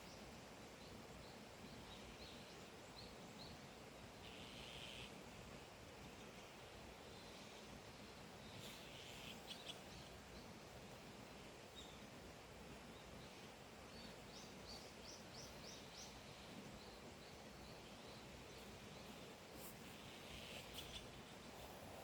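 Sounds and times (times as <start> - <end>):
steady outdoor hiss: 0.0 - 22.0
bird chirping: 8.5 - 10.1, 13.2 - 21.2.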